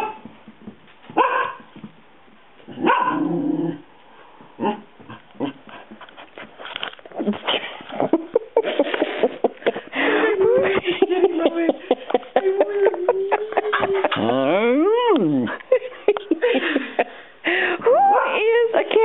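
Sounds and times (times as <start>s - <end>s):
dog barking: 1.2s - 1.6s, 2.8s - 3.3s
dog yipping: 1.2s - 1.6s, 2.8s - 3.2s.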